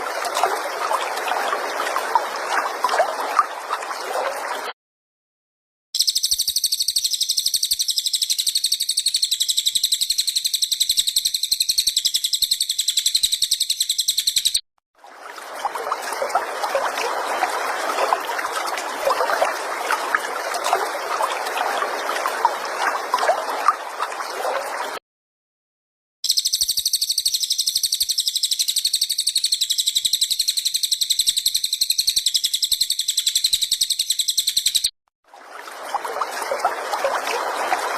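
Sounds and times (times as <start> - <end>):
high rapid bird trilling: 6.0 - 14.6.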